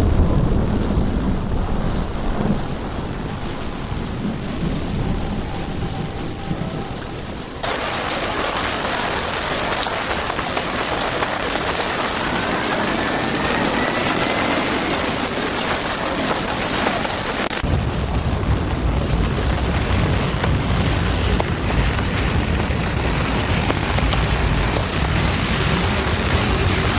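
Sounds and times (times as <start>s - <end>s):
strong low rumble: 0.0s - 7.6s, 17.6s - 26.9s
heavy rain hiss: 0.0s - 26.9s.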